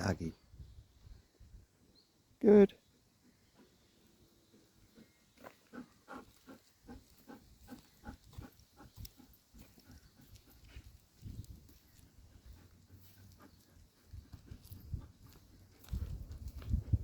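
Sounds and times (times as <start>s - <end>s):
dog panting: 3.1s - 17.0s.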